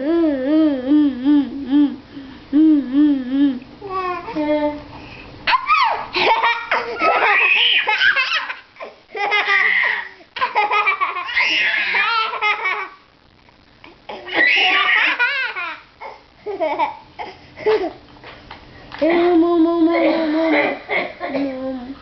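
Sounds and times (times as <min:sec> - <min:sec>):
child squealing and laughing: 0:05.5 - 0:10.2, 0:10.9 - 0:12.8, 0:14.1 - 0:15.8.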